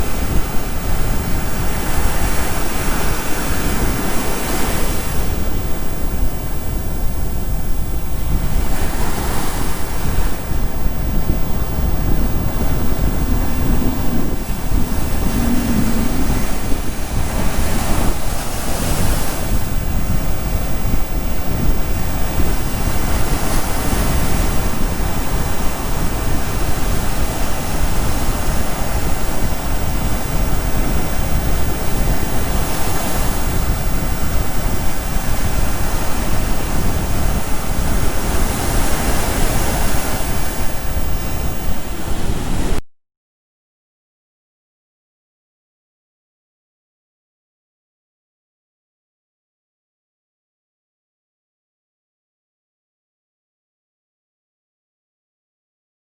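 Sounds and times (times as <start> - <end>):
waves washing onto beach: 0.0 - 6.6, 8.2 - 10.8, 12.8 - 20.3, 21.7 - 42.8
wind rumble on microphone: 0.0 - 42.8.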